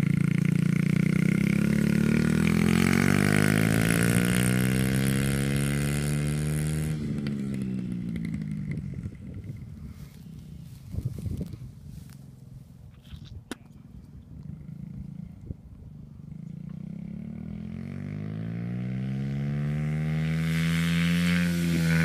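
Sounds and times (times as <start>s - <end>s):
dirt bike engine revving: 0.0s - 9.3s, 16.6s - 22.0s.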